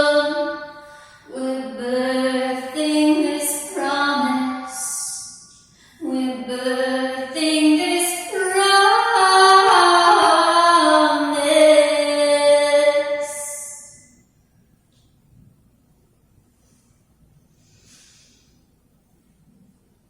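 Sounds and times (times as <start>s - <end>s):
woman singing slow melody: 0.0s - 13.9s
breathy hisses: 17.5s - 18.7s.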